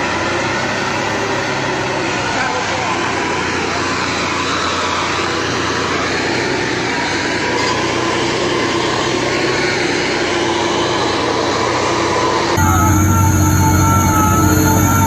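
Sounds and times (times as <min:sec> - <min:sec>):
thin whine: 0:12.6 - 0:15.0.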